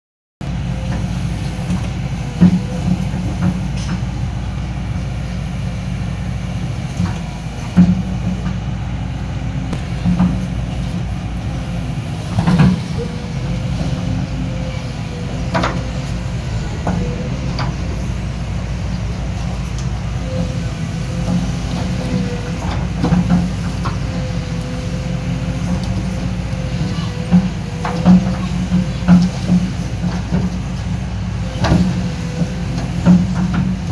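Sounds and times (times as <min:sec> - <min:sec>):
diesel engine under load: 0:00.4 - 0:33.9
hydraulic whine: 0:00.4 - 0:33.9
metal clanks and thuds: 0:06.9 - 0:08.6, 0:09.7 - 0:30.9.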